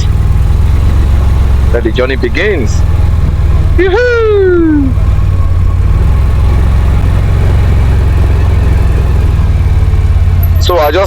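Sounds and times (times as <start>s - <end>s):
quad bike engine rumbling: 0.0s - 11.0s
man shouting: 3.8s - 5.0s.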